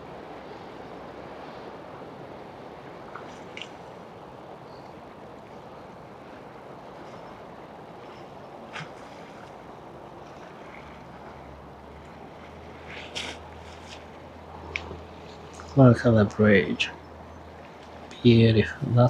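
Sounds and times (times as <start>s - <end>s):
motorboat engine running: 0.0s - 19.0s
water: 0.0s - 19.0s.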